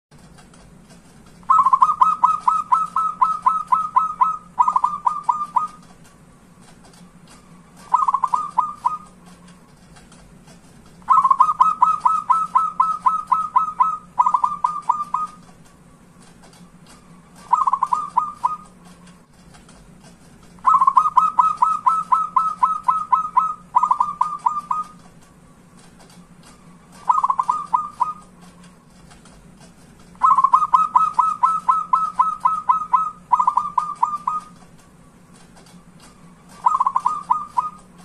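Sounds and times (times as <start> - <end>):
faint steady hum: 0.1 - 38.0
dove cooing in staccato runs: 1.4 - 6.0, 7.4 - 9.4, 11.0 - 15.6, 16.6 - 19.0, 20.6 - 25.0, 26.5 - 28.6, 30.2 - 34.6, 36.4 - 38.0.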